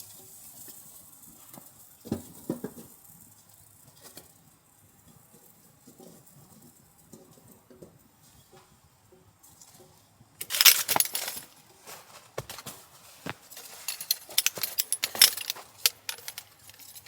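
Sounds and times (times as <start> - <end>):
small hard objects clinking: 10.4 - 11.6, 12.4 - 17.0
rustling: 10.4 - 17.0.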